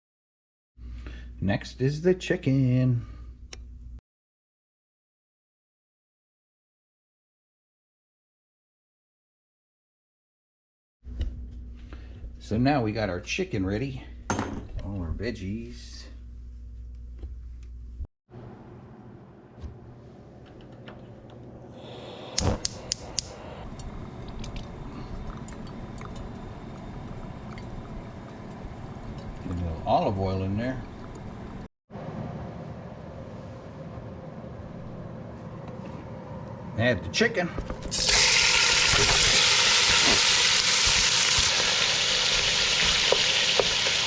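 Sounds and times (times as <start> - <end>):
chicken sizzling in oil: 37.9 - 44.0.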